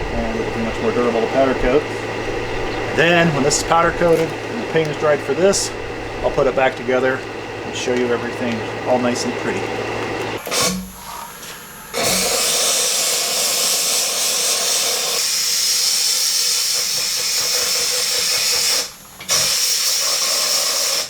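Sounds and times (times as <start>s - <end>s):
compressed air hissing: 10.4s - 21.0s.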